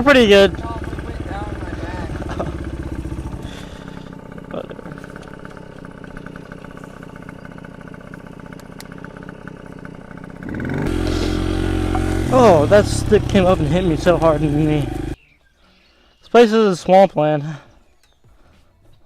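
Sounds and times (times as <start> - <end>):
motorbike engine revving: 0.0 - 15.2.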